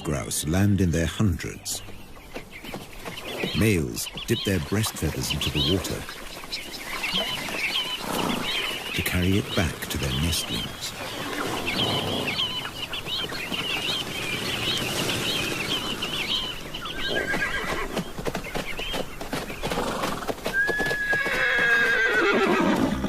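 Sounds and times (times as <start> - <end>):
flock of birds chirping: 0.0 - 22.7
horse whinnying: 17.0 - 18.0, 19.8 - 23.0.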